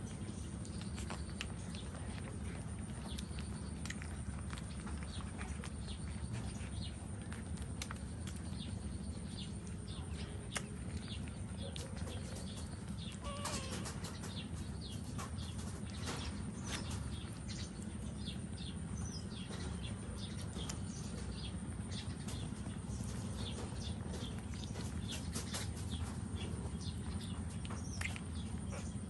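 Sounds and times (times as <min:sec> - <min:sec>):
steady low rumble: 0:00.0 - 0:29.0
small animals squeaking: 0:11.6 - 0:14.8.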